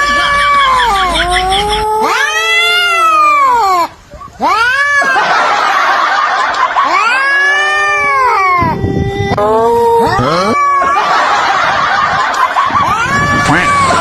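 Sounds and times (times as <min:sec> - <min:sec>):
cat yowling: 0:00.0 - 0:05.3, 0:06.8 - 0:11.2, 0:12.7 - 0:14.0.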